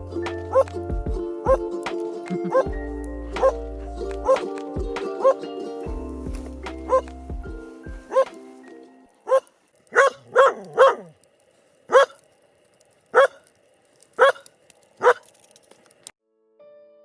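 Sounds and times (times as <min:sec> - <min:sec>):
dog barking: 0:02.5 - 0:02.7, 0:03.4 - 0:03.6, 0:05.2 - 0:05.4, 0:06.9 - 0:07.1, 0:08.1 - 0:08.4, 0:09.2 - 0:11.1, 0:11.9 - 0:12.2, 0:13.1 - 0:13.4, 0:14.2 - 0:15.2.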